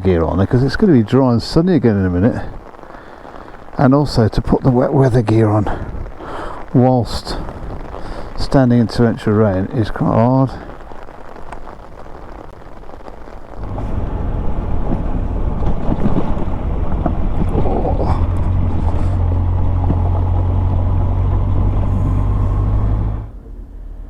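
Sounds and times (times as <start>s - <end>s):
wind rush on microphone: 0.0s - 23.4s
motorcycle engine running: 13.6s - 23.2s.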